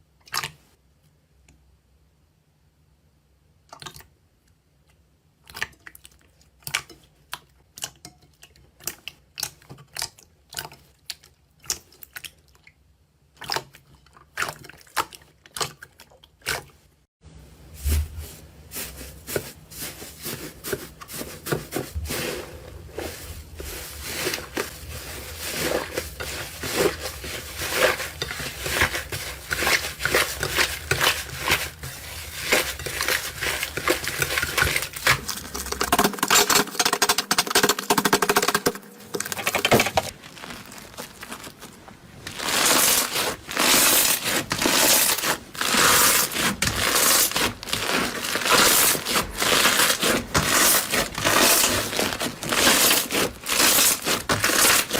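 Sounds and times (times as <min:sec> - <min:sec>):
crumbly material crunching: 0:39.2 - 0:54.9.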